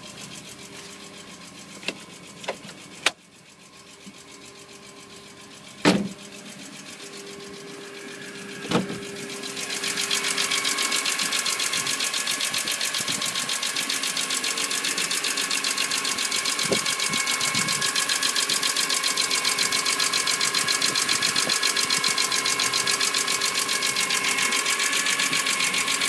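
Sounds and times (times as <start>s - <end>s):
car engine idling with ticking: 0.0s - 26.0s
brief thump: 5.8s - 6.2s, 8.6s - 9.0s.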